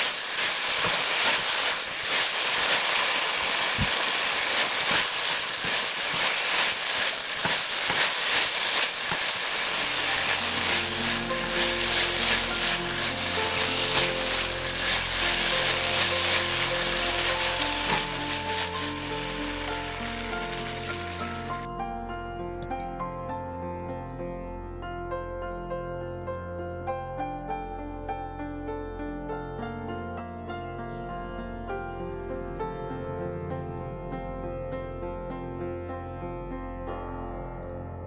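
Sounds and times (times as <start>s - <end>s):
food sizzling in a wok: 0.0s - 21.7s
background music: 3.4s - 38.0s.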